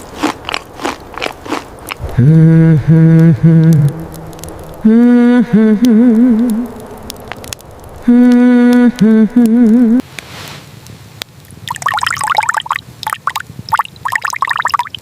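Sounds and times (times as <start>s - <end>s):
crackling gurgling noise: 0.0s - 10.1s, 10.8s - 15.0s
person humming a held note: 2.1s - 4.1s, 4.8s - 6.8s, 8.0s - 10.0s.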